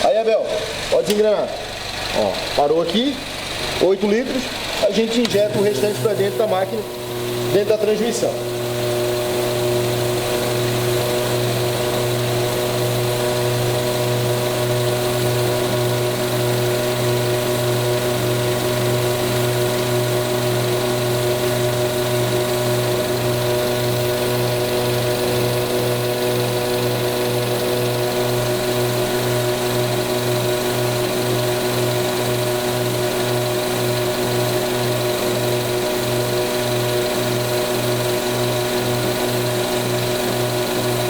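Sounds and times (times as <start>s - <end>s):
car engine idling: 0.0s - 41.0s.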